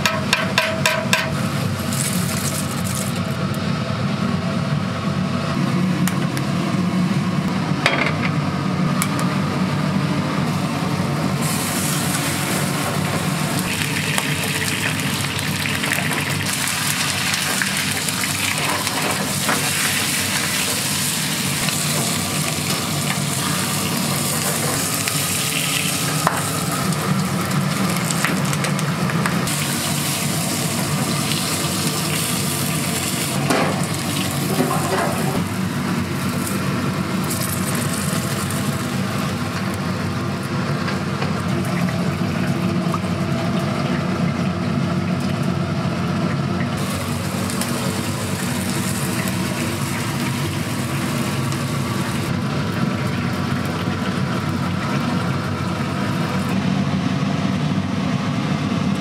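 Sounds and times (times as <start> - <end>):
food sizzling in a pan: 11.4 - 28.6, 29.4 - 36.6, 46.8 - 52.3.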